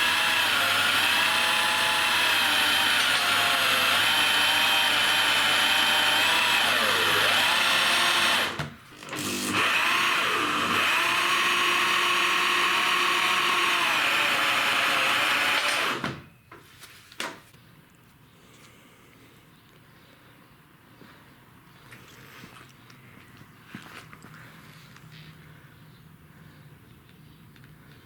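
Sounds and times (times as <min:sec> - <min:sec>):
electric drill motor whining: 0:00.0 - 0:16.3.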